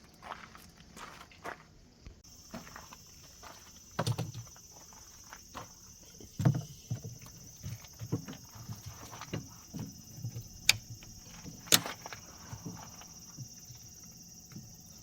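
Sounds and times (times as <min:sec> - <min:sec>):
knocks and thumps: 0:03.9 - 0:04.6, 0:06.2 - 0:13.7.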